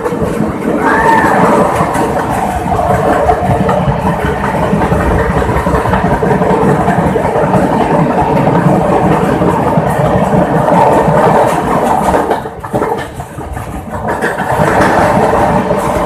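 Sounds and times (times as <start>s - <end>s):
train wheels rumbling in tunnel: 0.0s - 16.0s.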